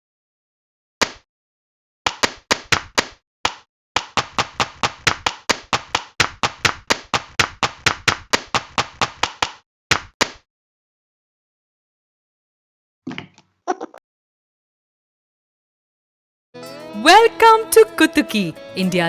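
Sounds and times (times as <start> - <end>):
hand claps: 2.1 - 10.1.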